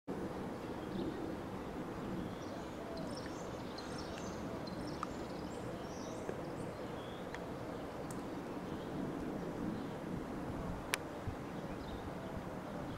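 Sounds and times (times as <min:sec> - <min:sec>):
small birds chirping: 0:00.5 - 0:10.1.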